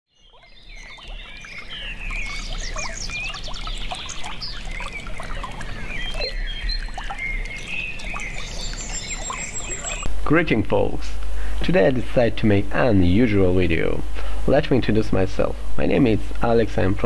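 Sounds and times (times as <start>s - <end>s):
birds chirping: 0.1s - 10.1s.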